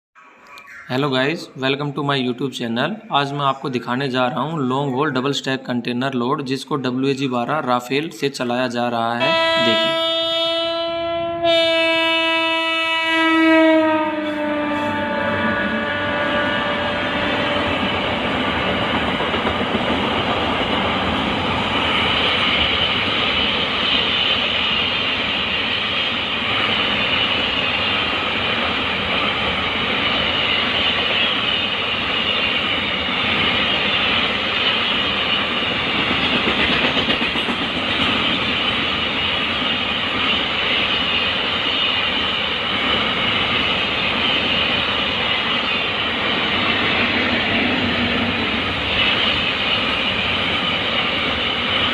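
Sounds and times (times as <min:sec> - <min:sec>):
high ringing of rails: 0:06.9 - 0:51.9
train wheels on rails: 0:11.5 - 0:51.9.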